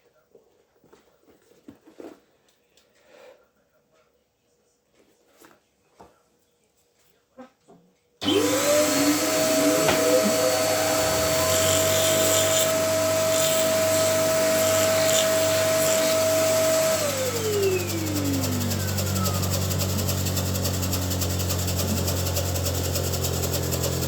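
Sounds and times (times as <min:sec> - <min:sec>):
electric motor whine: 0:08.2 - 0:24.0.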